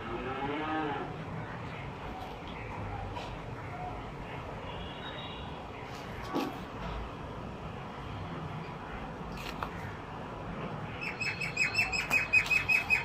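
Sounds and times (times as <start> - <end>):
small bird chirping: 11.0 - 13.0.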